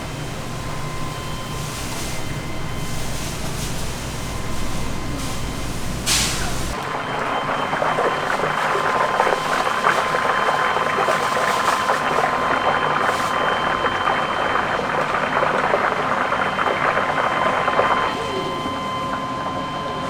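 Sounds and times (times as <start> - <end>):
chicken deep-frying in oil: 0.1 - 19.0.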